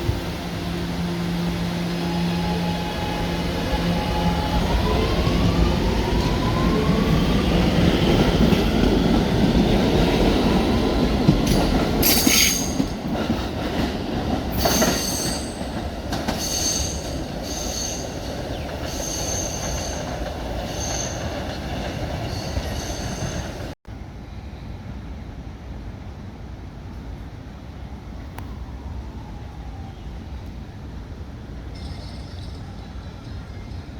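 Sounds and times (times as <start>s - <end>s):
wheels squealing on rails: 10.6s - 13.4s, 14.4s - 23.8s, 31.7s - 33.9s.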